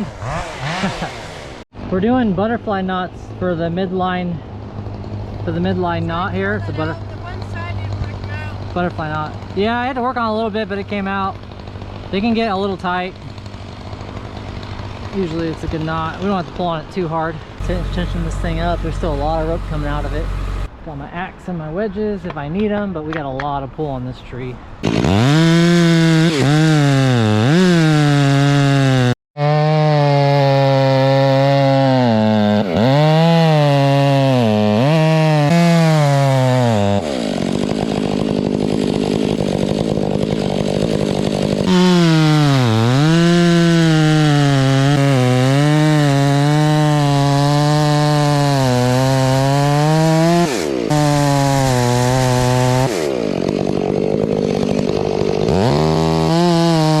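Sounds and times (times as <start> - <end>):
chainsaw cutting wood: 0.0 - 1.7, 4.6 - 10.0, 10.8 - 16.7, 17.5 - 20.7, 24.8 - 57.0.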